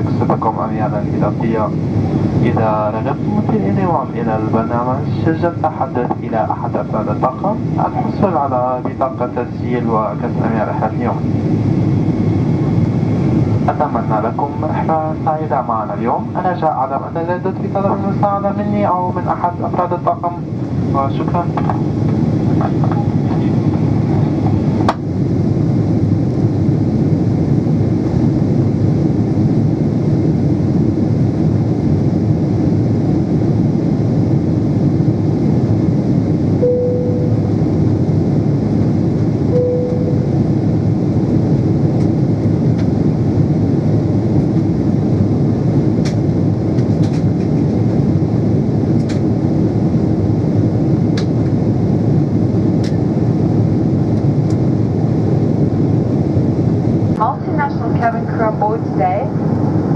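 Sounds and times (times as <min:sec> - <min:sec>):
airliner cabin engine noise: 0:00.0 - 0:59.9
short soft cabin tones: 0:39.5 - 0:40.3.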